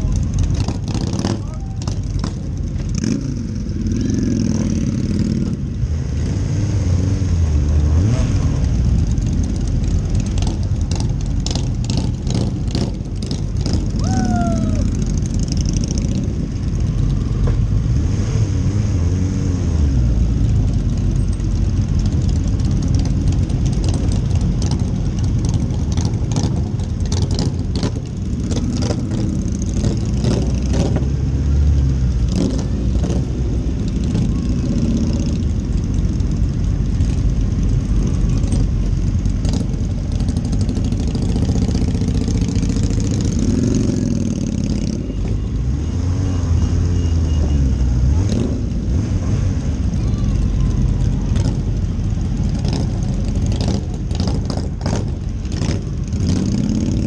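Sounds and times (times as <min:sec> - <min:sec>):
motorcycle engines at low speed: 0:00.0 - 0:57.0.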